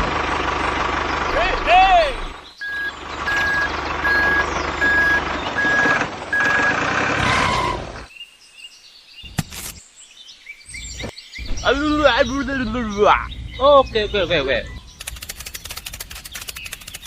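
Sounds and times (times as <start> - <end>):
engine running: 0.0 - 8.1
reversing alarm beeping: 2.6 - 8.0
sharp click: 15.0 - 17.0.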